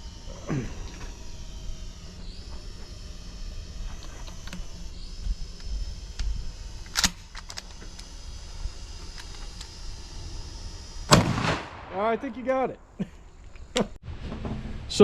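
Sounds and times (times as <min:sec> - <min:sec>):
drone motors whining: 0:00.0 - 0:14.0
shotgun shot: 0:11.1 - 0:12.3.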